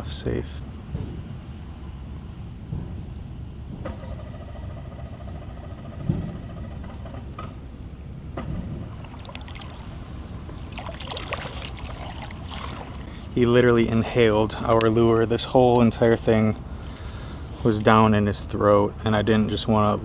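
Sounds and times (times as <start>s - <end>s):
high insect trill: 0.0s - 20.0s
water sloshing around kayak hull: 8.4s - 15.3s
light splashing: 8.7s - 13.9s.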